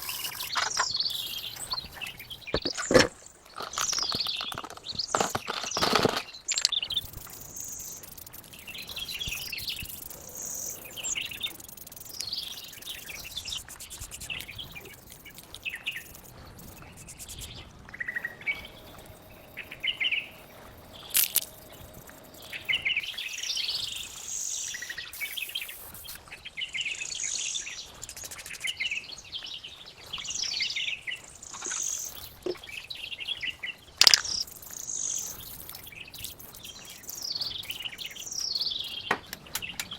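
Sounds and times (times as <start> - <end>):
sharp clicks: 0.0 - 17.6, 34.0 - 36.4
birds chirping and singing: 0.0 - 39.9.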